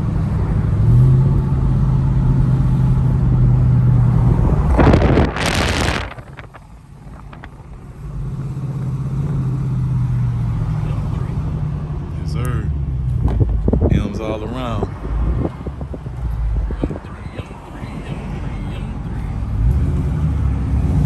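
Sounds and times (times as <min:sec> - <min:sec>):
car engine droning: 0:00.0 - 0:21.0
loud rushing noise: 0:04.1 - 0:07.5.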